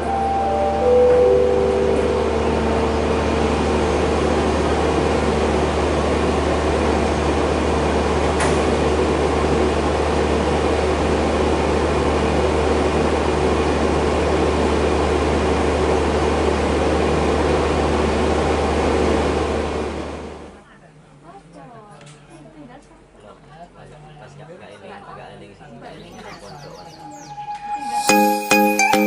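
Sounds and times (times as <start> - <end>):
steady tones: 0.0 - 4.6
train carriage hum: 0.0 - 24.5, 25.2 - 29.0.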